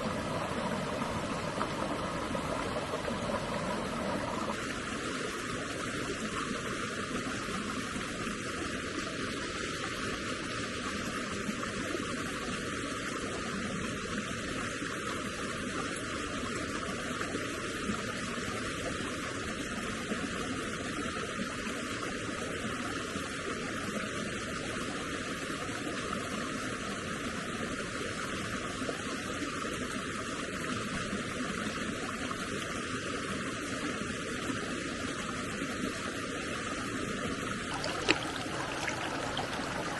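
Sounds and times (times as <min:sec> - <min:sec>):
water rushing: 0:00.0 - 0:07.5, 0:37.5 - 0:39.9.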